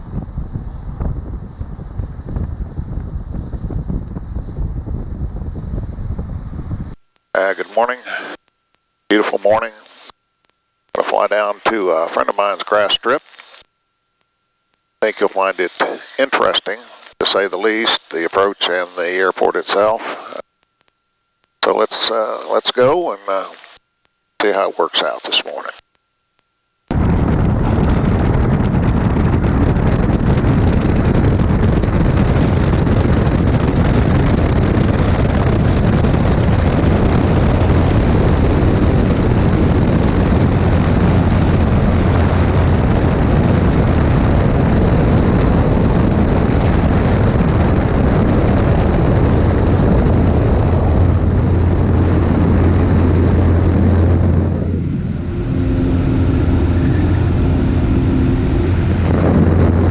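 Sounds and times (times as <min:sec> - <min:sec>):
propeller plane engine drone: 0:00.0 - 0:08.4, 0:26.9 - 0:59.9
smooth hum with steady tones: 0:00.0 - 0:59.9.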